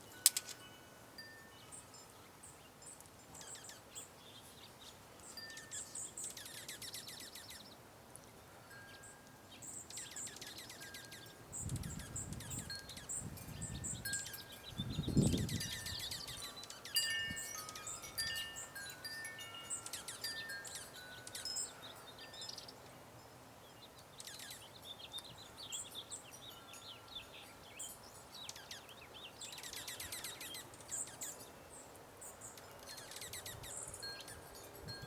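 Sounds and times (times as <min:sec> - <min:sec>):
wind chimes ringing: 0:00.0 - 0:02.2, 0:05.3 - 0:06.5, 0:08.6 - 0:09.7, 0:10.6 - 0:23.4, 0:32.6 - 0:35.0
small birds chirping and trilling: 0:00.0 - 0:35.0.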